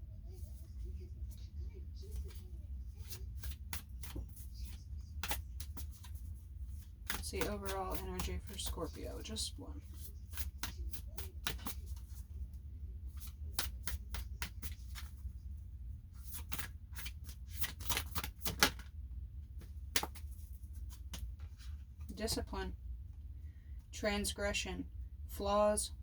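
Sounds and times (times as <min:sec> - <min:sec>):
cards being shuffled: 0:02.0 - 0:12.3, 0:13.0 - 0:15.3, 0:16.2 - 0:18.9, 0:19.6 - 0:22.4.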